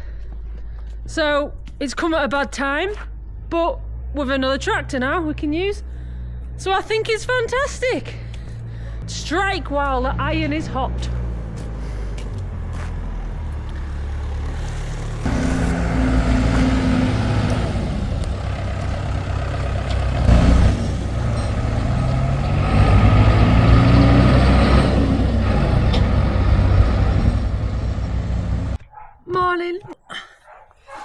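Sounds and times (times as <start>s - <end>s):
tractor diesel engine revving: 12.9s - 28.8s.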